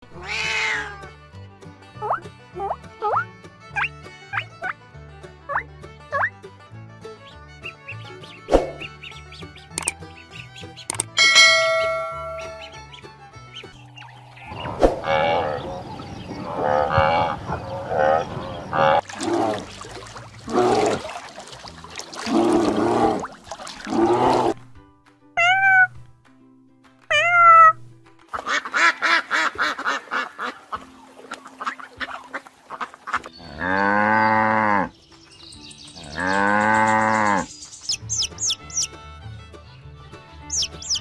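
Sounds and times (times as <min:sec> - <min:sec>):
rough low animal calls: 0:14.4 - 0:19.8, 0:20.4 - 0:21.1
duck quacking: 0:14.6 - 0:19.0, 0:28.3 - 0:30.8.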